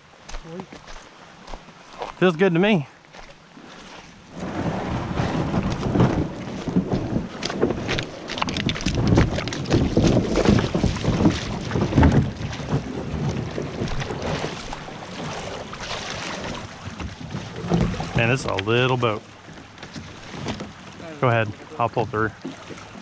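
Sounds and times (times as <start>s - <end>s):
kayaks knocking and scraping: 0.0s - 23.0s
water splashing and sloshing: 0.0s - 23.0s
wind buffeting microphone: 4.3s - 19.4s.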